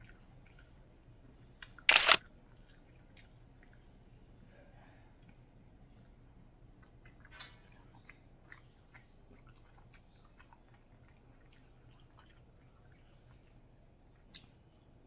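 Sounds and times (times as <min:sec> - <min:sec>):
wet chewing and mouth clicks: 0:13.3 - 0:14.6.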